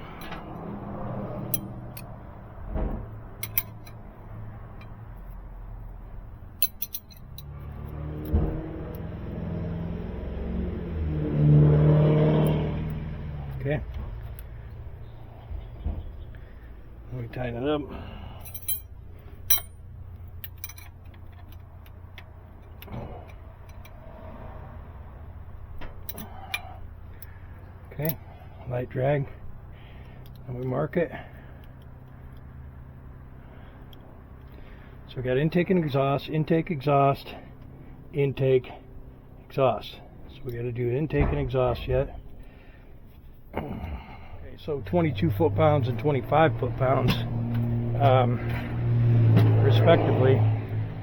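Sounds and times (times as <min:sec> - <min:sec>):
hand tools clicking and clinking: 0:03.4 - 0:04.0, 0:06.6 - 0:08.4, 0:18.4 - 0:24.0, 0:26.0 - 0:26.8
hand tools clicking on metal: 0:06.6 - 0:08.0.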